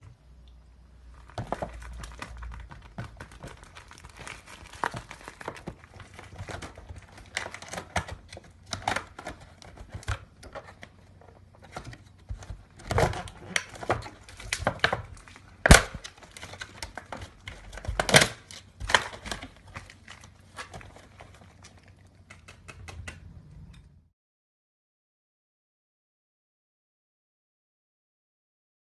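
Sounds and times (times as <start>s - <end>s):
plastic and cardboard crinkling: 1.0s - 22.5s
packaging tearing: 1.2s - 11.0s, 11.6s - 21.7s
sharp plastic snaps: 11.7s - 19.8s.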